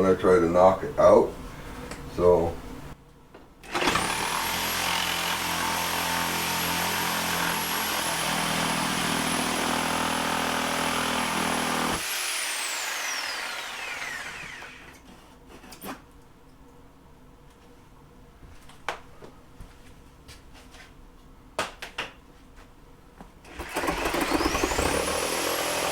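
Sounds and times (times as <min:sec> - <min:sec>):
electric power saw cutting: 0:03.7 - 0:15.0, 0:23.5 - 0:25.9.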